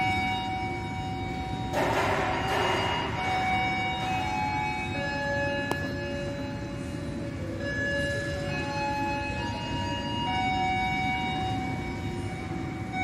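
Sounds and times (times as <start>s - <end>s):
high ringing tones: 0.0s - 13.0s.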